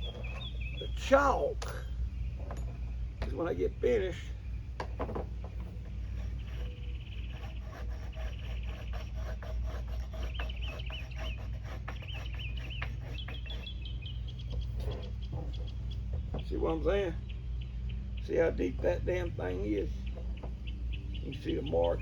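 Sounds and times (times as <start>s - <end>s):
bird warbling: 0.0s - 4.7s, 6.0s - 16.4s
low steady hum: 0.0s - 22.0s
knife scraping wood: 5.4s - 15.8s.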